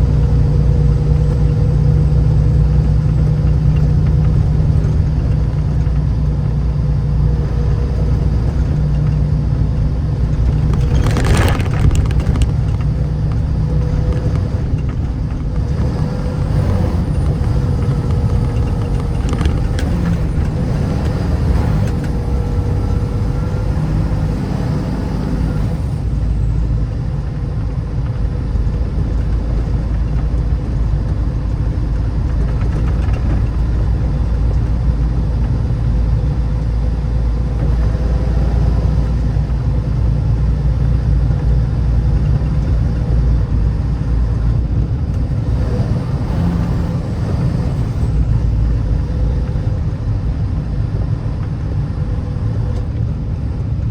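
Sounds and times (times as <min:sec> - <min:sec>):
engine rumble: 0:00.0 - 0:53.9
road noise: 0:00.0 - 0:53.9.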